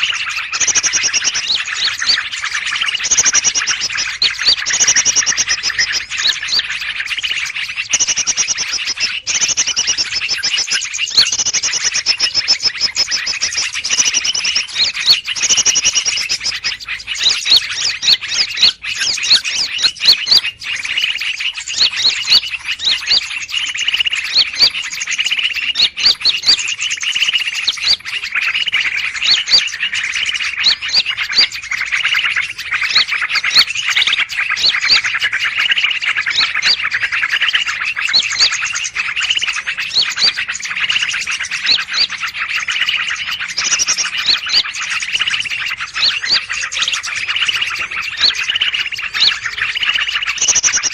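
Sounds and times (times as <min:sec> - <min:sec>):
chorus of small birds chirping: 0:00.0 - 0:50.9.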